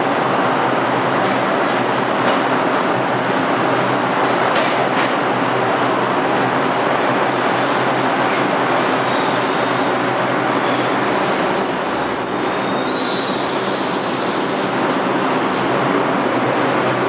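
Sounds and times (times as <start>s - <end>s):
subway train rumbling: 0.0s - 17.0s
steel wheels squealing: 8.8s - 14.7s.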